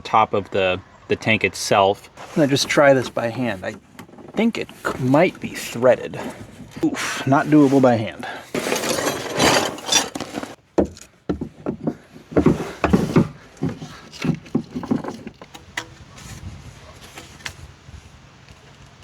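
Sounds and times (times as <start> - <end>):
plastic pipe fittings knocking: 10.8 - 16.4.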